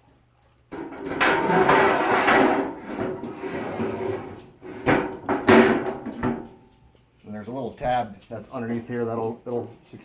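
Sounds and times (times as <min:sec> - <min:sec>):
metal ramp scraping: 0:00.8 - 0:06.2.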